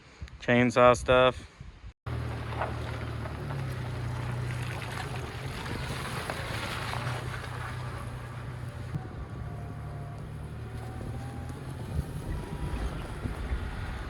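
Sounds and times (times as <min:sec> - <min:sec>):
road and wind noise: 0:01.5 - 0:14.0
truck engine running: 0:02.1 - 0:14.0.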